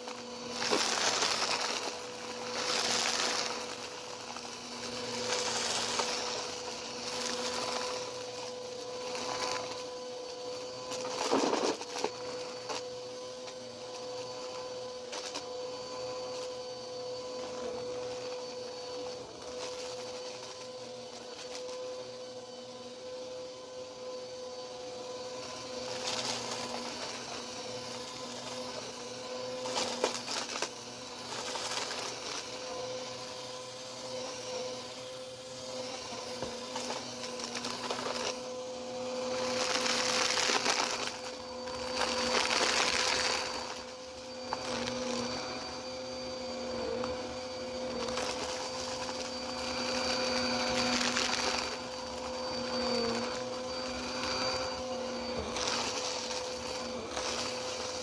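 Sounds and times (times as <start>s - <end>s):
vacuum cleaner motor whine: 0.0s - 58.0s
debris crackling in vacuum: 35.6s - 58.0s.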